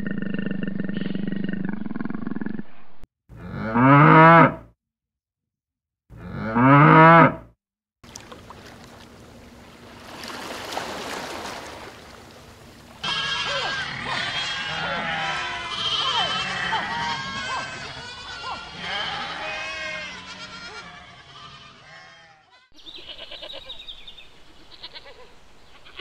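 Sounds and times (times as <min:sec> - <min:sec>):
cow mooing: 0:03.4 - 0:04.7, 0:06.2 - 0:07.5, 0:13.0 - 0:22.5.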